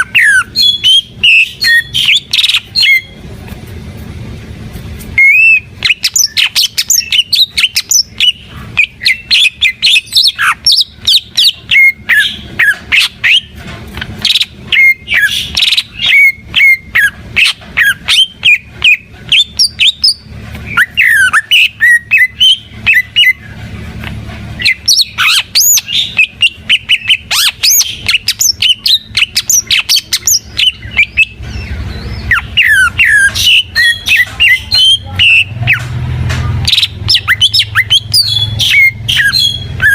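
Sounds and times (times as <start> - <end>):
bird singing whistled notes: 0.0 - 3.2, 5.2 - 13.5, 24.6 - 35.8, 36.6 - 39.9.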